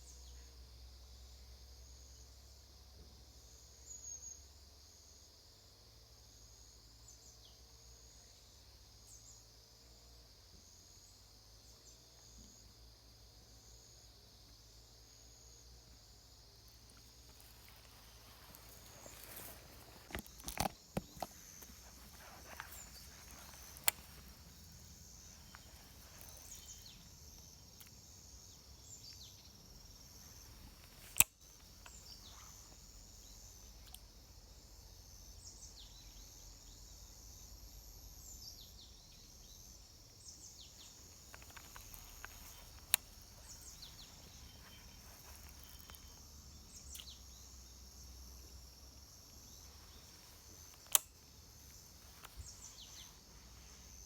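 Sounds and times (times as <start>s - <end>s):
high-pitched insect drone: 16.4s - 54.0s
sharp clicks: 17.0s - 28.0s, 30.0s - 32.8s, 33.8s - 34.1s, 40.6s - 47.2s, 49.2s - 53.0s.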